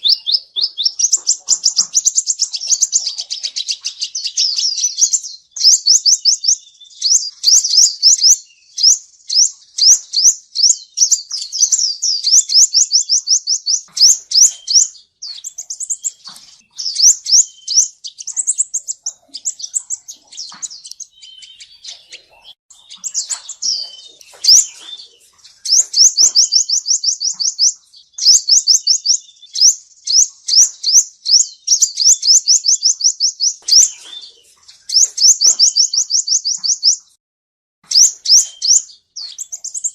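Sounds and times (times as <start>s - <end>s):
sunbird chirping trills: 0.0s - 37.2s, 37.8s - 39.9s.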